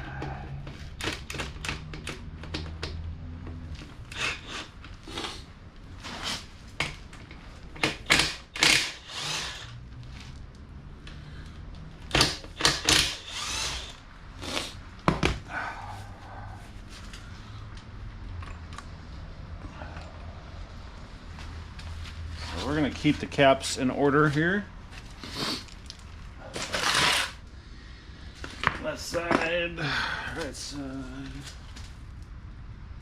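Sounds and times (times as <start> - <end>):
power tool bursts: 7.9 - 9.8, 12.1 - 14.8.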